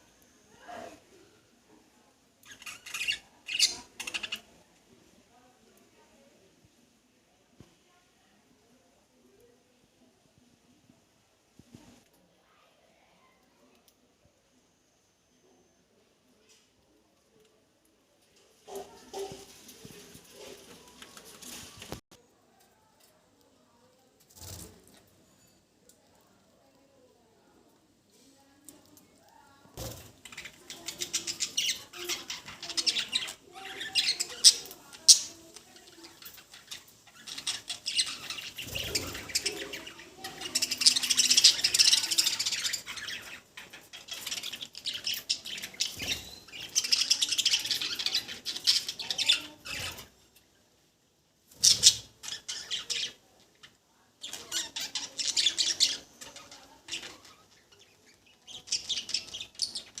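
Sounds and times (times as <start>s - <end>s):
budgerigars chattering and chirping: 2.5s - 4.5s, 30.3s - 50.1s, 51.6s - 53.2s, 54.2s - 60.0s.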